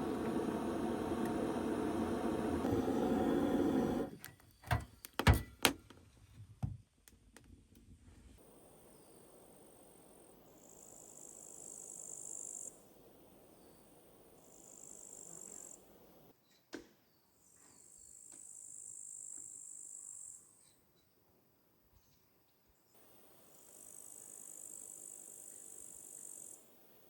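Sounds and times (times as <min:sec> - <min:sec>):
insects trilling: 0:08.4 - 0:16.3, 0:23.0 - 0:27.0.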